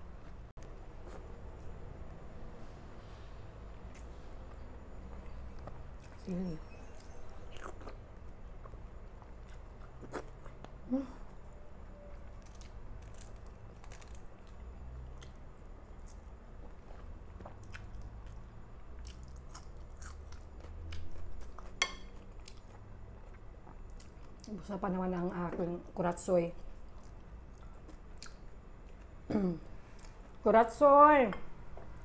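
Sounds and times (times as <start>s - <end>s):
person chewing food: 6.9s - 10.8s, 12.4s - 24.5s.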